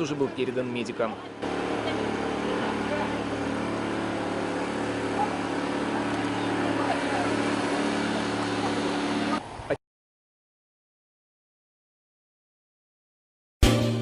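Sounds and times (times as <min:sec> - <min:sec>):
road noise: 0:00.0 - 0:09.8
vehicle engine hum: 0:00.0 - 0:09.8.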